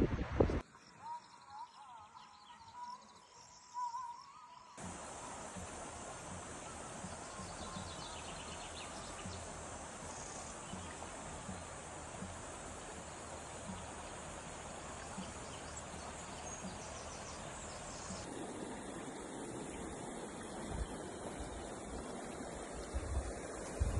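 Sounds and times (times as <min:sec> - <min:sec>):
steady rushing hiss: 0:04.8 - 0:23.9.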